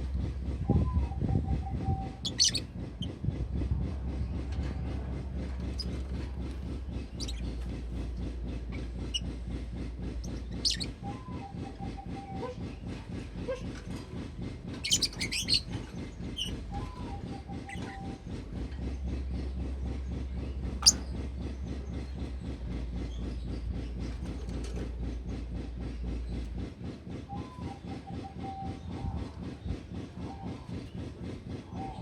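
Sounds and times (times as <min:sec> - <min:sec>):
low pulsing rumble: 0:00.0 - 0:32.0
bird chirping: 0:02.2 - 0:02.6.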